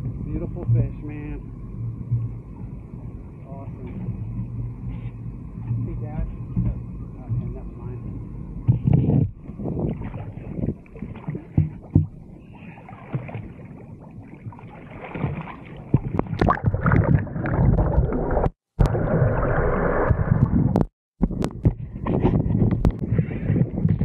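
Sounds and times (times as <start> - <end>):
water splashing around a boat: 0.0 - 24.0.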